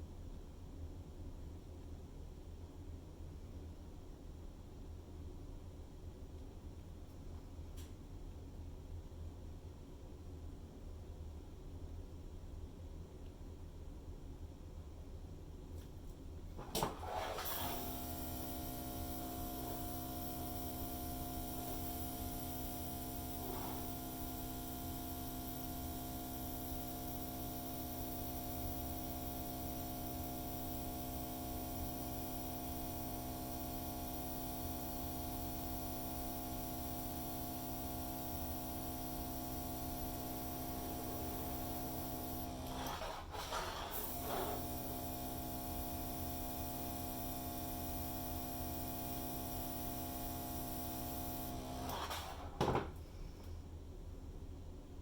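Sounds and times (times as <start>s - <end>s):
hairdryer motor hum: 16.6s - 52.9s.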